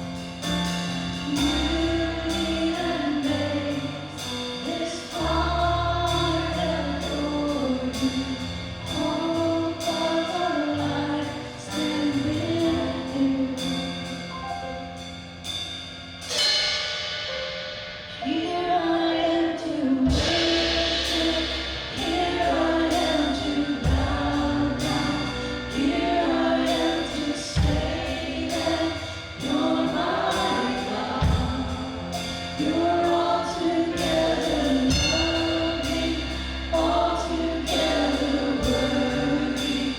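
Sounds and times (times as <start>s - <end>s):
singers leading a worship song: 0.0s - 14.4s, 18.1s - 39.9s
band with bass and drum kit: 0.0s - 39.9s.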